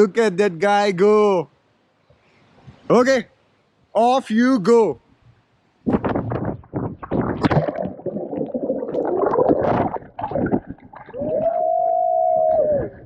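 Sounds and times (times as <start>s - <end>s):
water splashing and gurgling: 6.0s - 13.0s
hum-like tone underwater: 7.4s - 13.0s.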